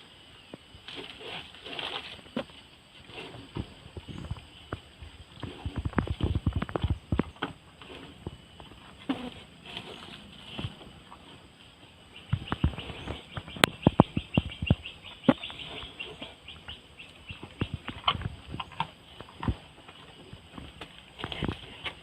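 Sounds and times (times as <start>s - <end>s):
cow chewing hard seeds: 4.8s - 11.5s.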